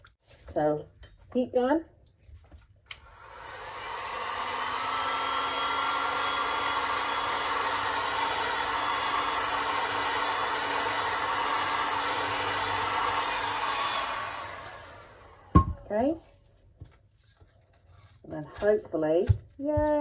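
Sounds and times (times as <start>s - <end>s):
heat gun blowing: 3.0s - 15.9s.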